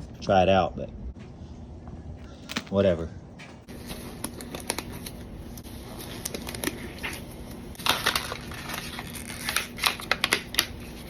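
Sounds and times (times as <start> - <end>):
plastic packaging crackling: 3.7 - 10.9.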